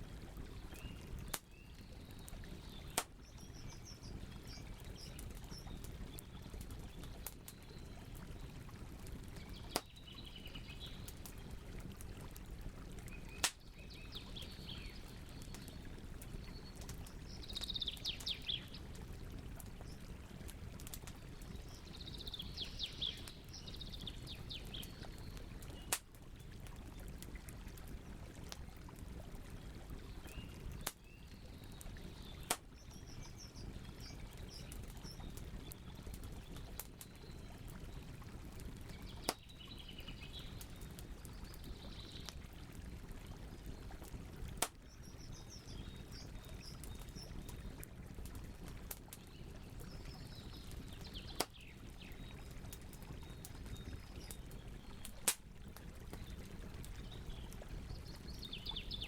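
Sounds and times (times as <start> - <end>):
campfire crackling: 0.1 - 59.0
songbirds chirping and trilling: 0.6 - 8.6, 9.2 - 11.8, 13.0 - 18.9, 21.2 - 25.9, 30.1 - 35.8, 38.9 - 42.4, 56.1 - 59.0.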